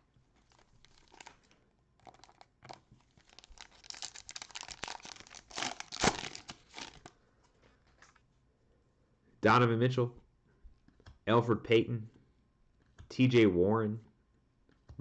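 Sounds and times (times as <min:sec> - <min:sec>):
cellophane wrapper crinkling: 0:00.0 - 0:07.2.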